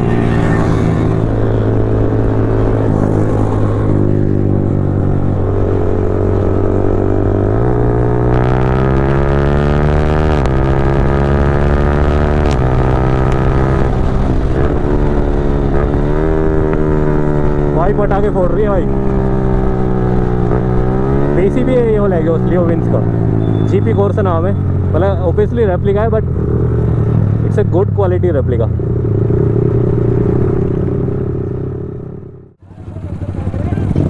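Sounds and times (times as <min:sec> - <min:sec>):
motorcycle engine accelerating: 0:00.0 - 0:34.0
exhaust cracks: 0:10.2 - 0:23.4.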